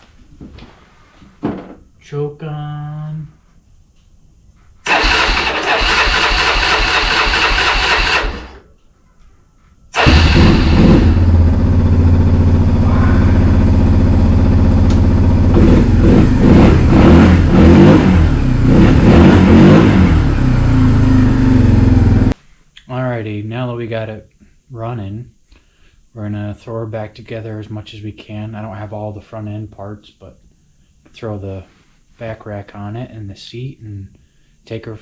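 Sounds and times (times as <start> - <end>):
engine cranking: 4.9 - 8.5, 10.0 - 11.3
atv engine running and revving: 10.0 - 22.3.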